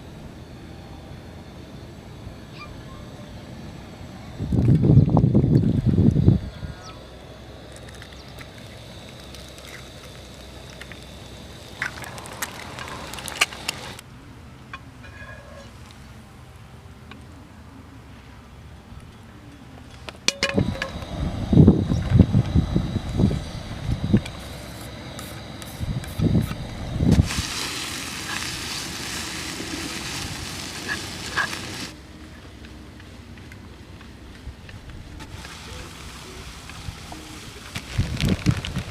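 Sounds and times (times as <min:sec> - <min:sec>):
steady hiss: 0:03.4 - 0:14.0, 0:19.8 - 0:38.9
wind buffeting microphone: 0:04.2 - 0:06.9, 0:20.5 - 0:29.2, 0:36.8 - 0:38.9
crackles and pops: 0:07.7 - 0:14.0, 0:23.8 - 0:31.9, 0:32.6 - 0:38.9.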